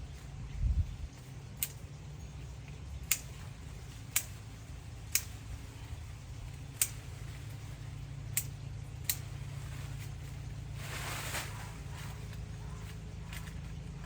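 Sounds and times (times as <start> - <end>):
steady low hum: 0.0 - 14.0
pruning shears snipping twigs: 1.2 - 2.0, 2.6 - 5.7, 6.4 - 7.7, 8.3 - 10.3, 11.8 - 14.0.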